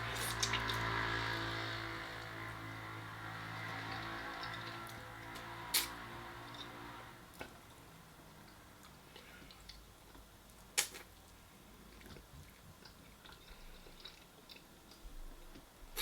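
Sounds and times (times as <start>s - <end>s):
person chewing food: 0.0s - 1.0s, 3.9s - 7.6s, 8.4s - 16.0s
wet mouth clicks: 5.7s - 6.0s, 10.8s - 11.1s.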